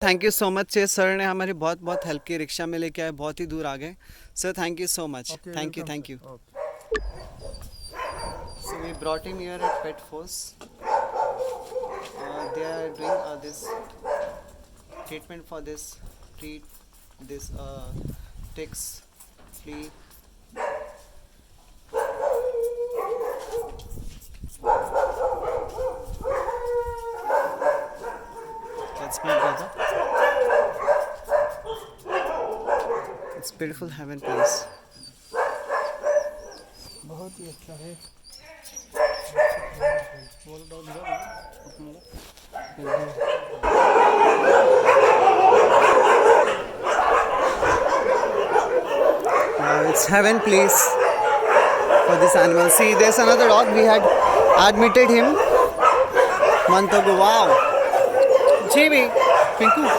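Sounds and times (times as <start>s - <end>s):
dog crying: 6.6s - 10.0s, 10.7s - 15.1s, 21.9s - 23.9s, 24.6s - 33.4s, 34.2s - 59.9s.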